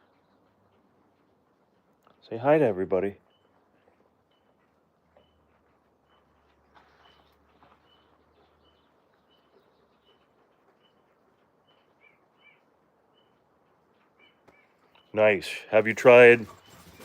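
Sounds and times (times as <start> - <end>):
faint bird chirping: 3.0 - 15.4.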